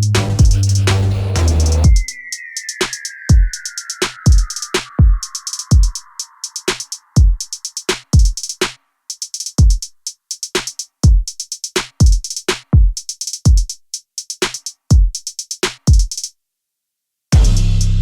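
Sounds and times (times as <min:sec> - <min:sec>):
bass line: 0:00.0 - 0:02.0, 0:17.4 - 0:18.0
drum-machine beat: 0:00.0 - 0:16.3, 0:17.4 - 0:18.0.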